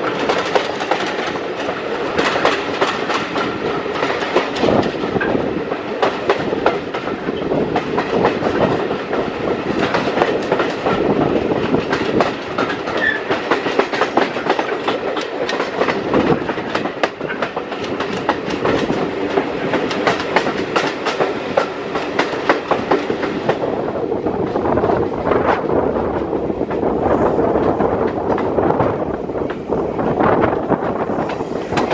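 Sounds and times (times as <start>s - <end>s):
wheels clattering over rail joints: 0.0s - 23.6s, 30.3s - 31.9s
train rumble: 0.0s - 31.9s.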